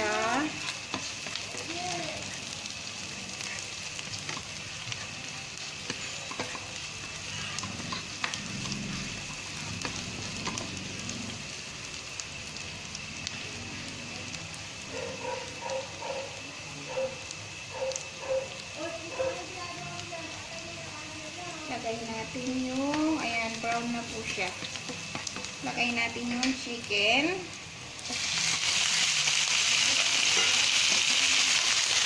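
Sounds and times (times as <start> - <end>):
vegetables sizzling in hot oil: 0.0 - 32.0
spoon scraping pan: 3.4 - 10.8, 30.2 - 31.1.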